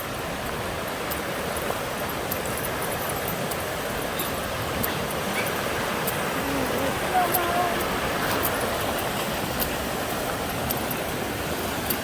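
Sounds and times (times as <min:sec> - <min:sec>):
water rushing in a creek: 0:00.0 - 0:12.0.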